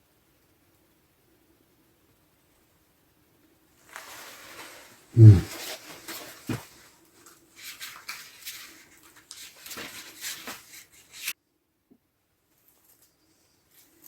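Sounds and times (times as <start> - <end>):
rustling and crackling: 3.8 - 11.3.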